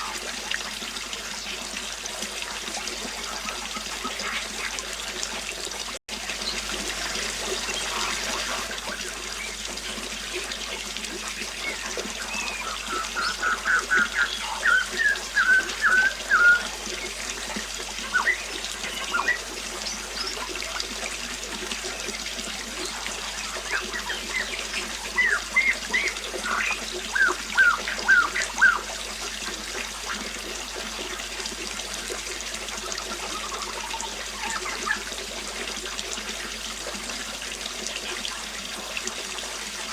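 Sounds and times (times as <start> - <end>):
trickling water: 0.0 - 39.9
bird chirping: 11.7 - 16.6.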